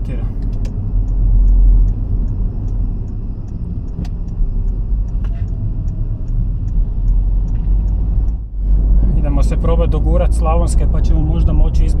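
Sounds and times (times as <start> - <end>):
car engine and tyre rumble: 0.0 - 12.0
light repeating tick: 0.2 - 8.6
sharp click: 0.4 - 4.4.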